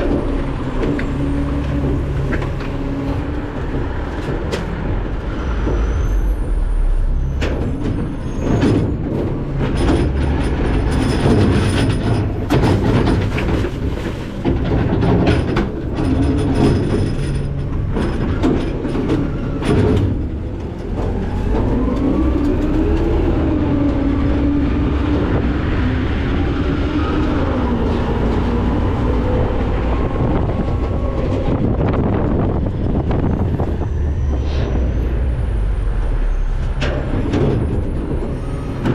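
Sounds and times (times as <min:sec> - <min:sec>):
trash crashing into hopper: 0:07.3 - 0:17.2.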